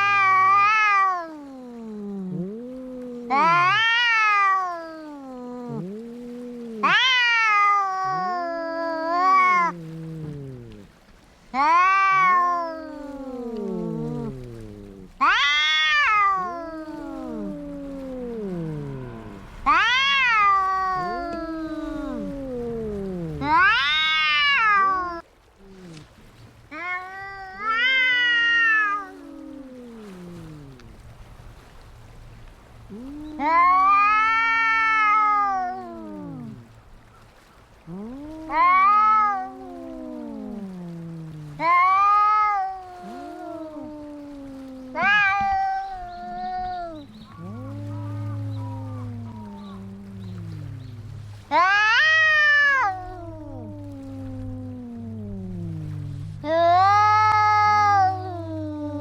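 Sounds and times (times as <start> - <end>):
cat wailing high: 0.0 - 2.6, 3.3 - 10.4, 11.6 - 26.0, 26.7 - 31.0, 32.9 - 36.6, 37.8 - 59.0
cat low wavering moan: 0.0 - 59.0.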